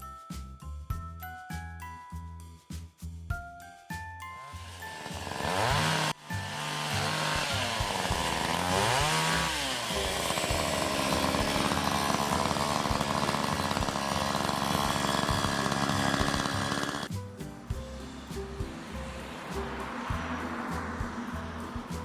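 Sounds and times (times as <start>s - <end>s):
chainsaw engine revving: 4.5s - 17.1s.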